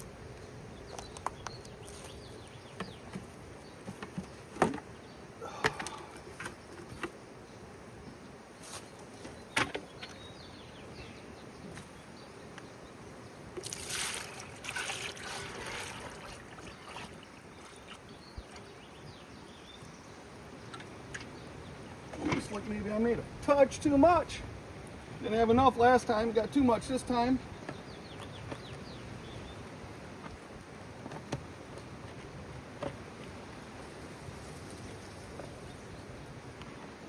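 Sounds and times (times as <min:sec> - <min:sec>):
honeybees humming: 0:00.0 - 0:37.0
beehive equipment clicks and knocks: 0:02.7 - 0:04.9, 0:05.6 - 0:07.2
water pouring into feeder: 0:13.6 - 0:18.7.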